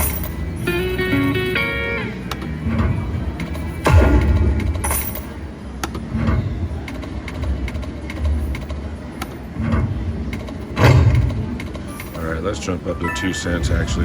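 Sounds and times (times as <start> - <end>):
slot machine low rumbling: 0.0 - 6.9, 10.9 - 14.0.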